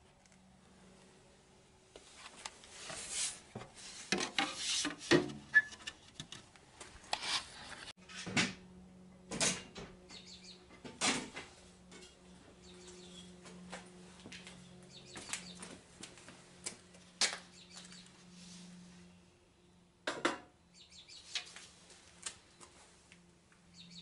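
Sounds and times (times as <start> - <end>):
tools and parts knocking and scraping: 4.1 - 6.5.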